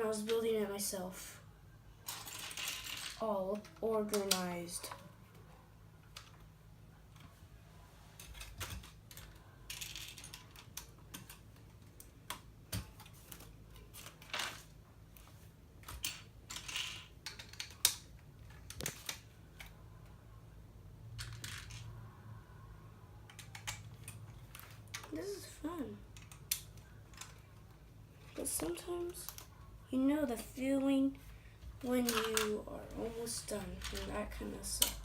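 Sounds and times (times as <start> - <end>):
plastic bricks clicking: 15.8 - 19.7, 23.3 - 25.1.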